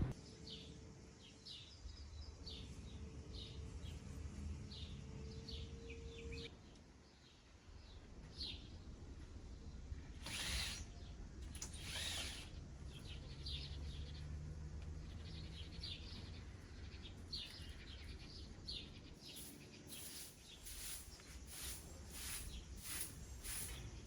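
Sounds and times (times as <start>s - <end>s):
small birds chirping: 9.6s - 24.0s.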